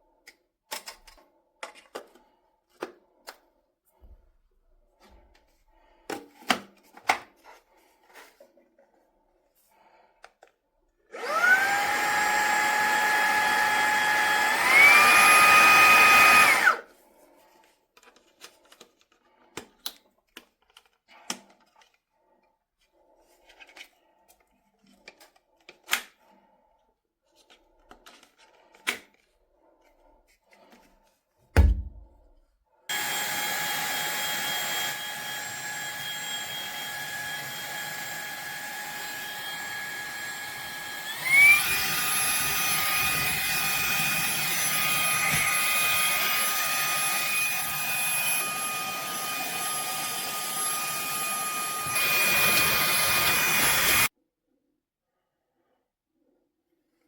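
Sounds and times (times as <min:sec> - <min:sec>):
handheld vacuum motor whining: 0:11.1 - 0:16.9, 0:32.9 - 0:54.1
dull thump: 0:31.6 - 0:32.2.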